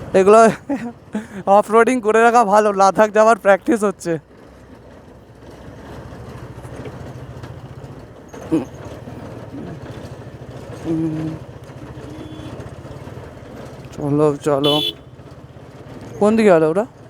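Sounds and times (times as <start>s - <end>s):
motorcycle engine running: 0.0s - 17.0s
short steady tone: 14.6s - 15.0s.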